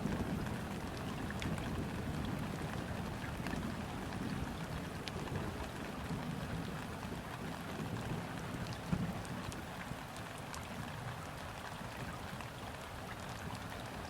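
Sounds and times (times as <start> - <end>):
rain hissing on water: 0.0 - 14.0
raindrop ticks: 3.3 - 6.9.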